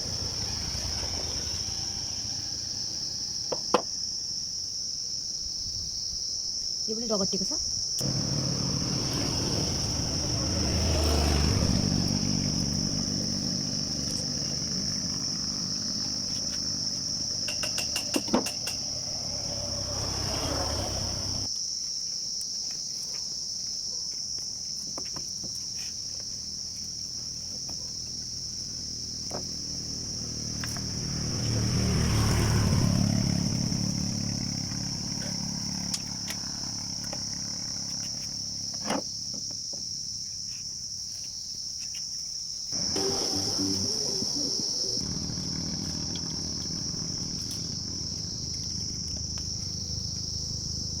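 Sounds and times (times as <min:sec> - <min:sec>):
low engine rumble: 0:00.0 - 0:03.6, 0:08.0 - 0:21.5, 0:28.0 - 0:38.6, 0:42.8 - 0:51.0
crickets trilling: 0:00.0 - 0:51.0.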